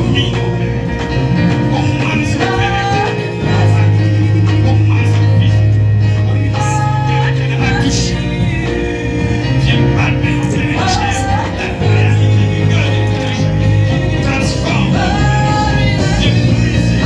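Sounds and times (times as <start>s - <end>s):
people singing: 0.0s - 17.0s
steady bass line: 0.0s - 17.0s
worship band playing: 0.0s - 17.0s.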